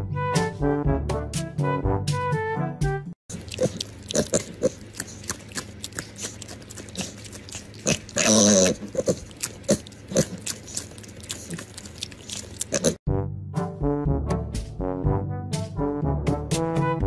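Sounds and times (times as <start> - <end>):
piglet mouth clicks and smacks: 3.3 - 8.2, 8.8 - 13.0
piglet squeal: 3.4 - 13.0
brass music: 13.1 - 17.0.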